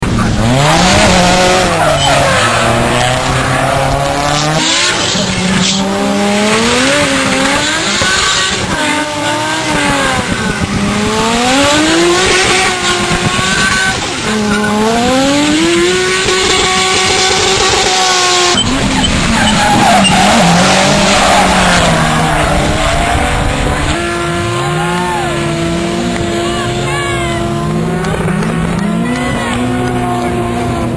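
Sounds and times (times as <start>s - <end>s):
car engine revving: 0.0s - 30.9s
tyres squealing and hissing: 0.5s - 5.8s, 17.0s - 24.0s.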